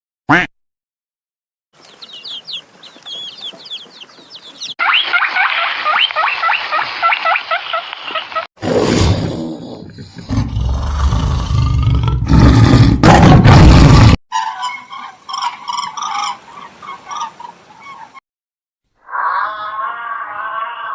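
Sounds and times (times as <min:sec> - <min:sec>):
high animal chirping calls: 0:01.8 - 0:08.2
low rough animal roar: 0:09.4 - 0:14.2, 0:19.0 - 0:20.9.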